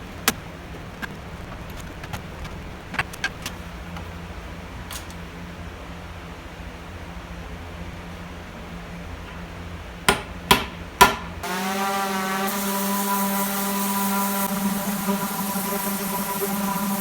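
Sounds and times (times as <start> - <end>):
low steady hum: 0.0 - 17.0
sharp knocks: 10.1 - 11.4
pitched drone with overtones: 11.4 - 17.0.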